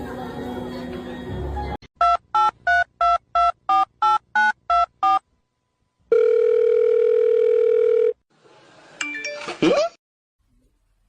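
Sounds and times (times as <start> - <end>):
steady telephone tone: 6.1 - 8.2.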